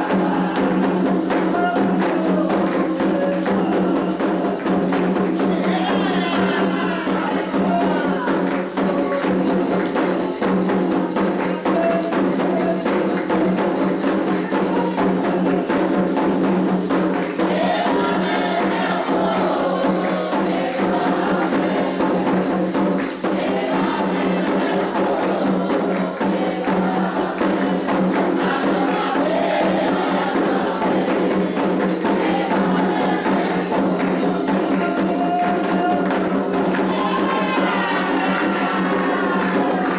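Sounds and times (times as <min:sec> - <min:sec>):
hand drums fast rhythm: 0:00.0 - 0:39.9
voices singing: 0:00.0 - 0:39.9.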